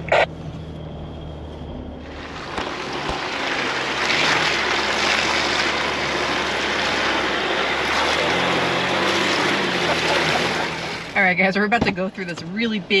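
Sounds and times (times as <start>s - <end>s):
vehicle engine running: 0.0s - 13.0s
rush of water and slush: 2.1s - 11.2s.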